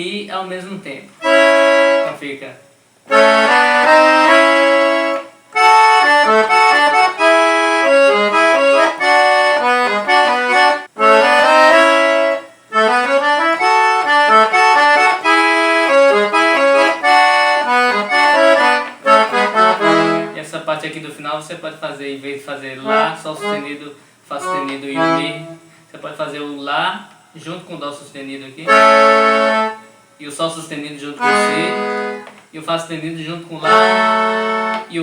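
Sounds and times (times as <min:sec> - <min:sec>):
piano accordion lively melody: 0:01.2 - 0:02.4, 0:03.1 - 0:20.9, 0:22.8 - 0:25.7, 0:28.6 - 0:30.1, 0:31.0 - 0:32.4, 0:33.5 - 0:35.0.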